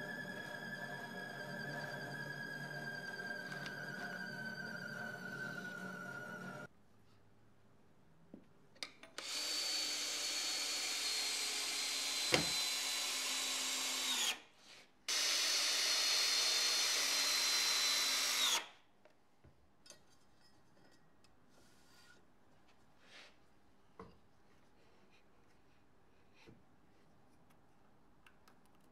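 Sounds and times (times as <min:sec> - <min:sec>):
power tool whining: 0:00.0 - 0:06.7, 0:09.2 - 0:14.4, 0:15.1 - 0:18.7.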